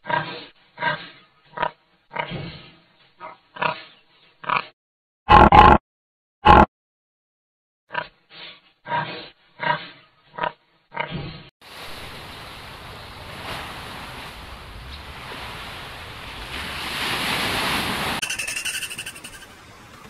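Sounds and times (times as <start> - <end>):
pig grunting: 0.0 - 5.8, 8.9 - 11.3
rushing water: 11.6 - 20.0.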